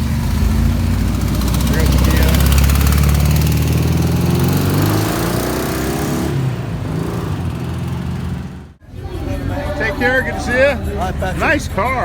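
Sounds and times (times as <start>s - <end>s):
car engine driving off: 0.0s - 8.8s.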